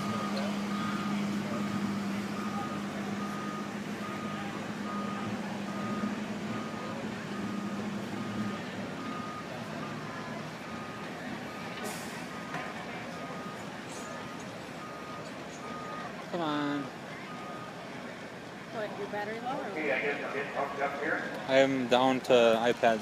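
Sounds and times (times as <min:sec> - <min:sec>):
reversing alarm beeping: 0:00.0 - 0:17.8
engine humming: 0:00.0 - 0:23.0.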